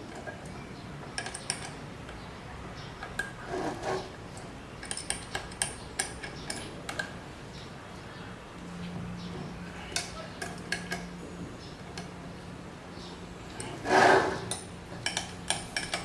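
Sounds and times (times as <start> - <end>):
short rub: 13.7 - 14.5.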